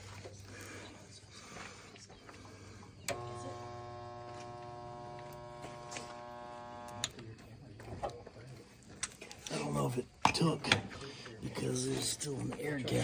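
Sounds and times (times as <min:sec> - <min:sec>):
electric welder buzzing: 0:03.1 - 0:07.1.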